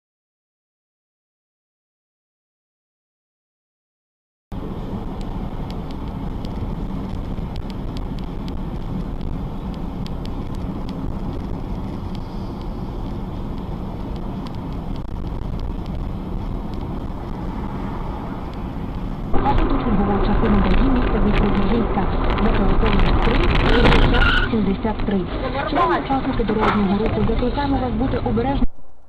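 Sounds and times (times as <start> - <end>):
vehicle engine and road noise: 4.5 - 29.0
wind on microphone: 5.3 - 25.2.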